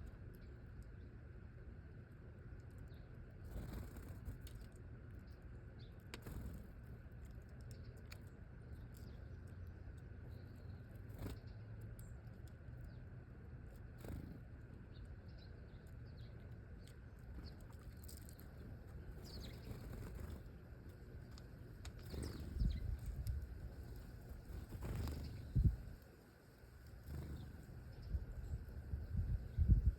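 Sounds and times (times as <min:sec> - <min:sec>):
low outdoor rumble: 0:00.0 - 0:29.9
faint small bird chirps: 0:02.7 - 0:06.7, 0:07.4 - 0:13.1, 0:13.7 - 0:26.0, 0:26.8 - 0:29.9.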